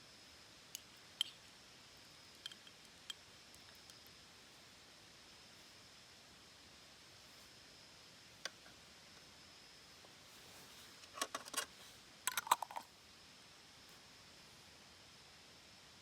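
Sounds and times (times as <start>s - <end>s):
faint high-pitched hum: 0.0s - 16.0s
small hard objects clinking: 12.3s - 12.8s.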